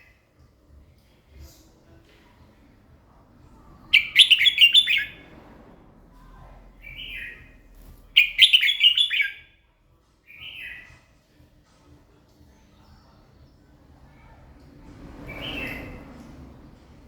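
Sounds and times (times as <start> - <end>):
bulbul singing: 3.5 - 5.2, 6.8 - 11.1.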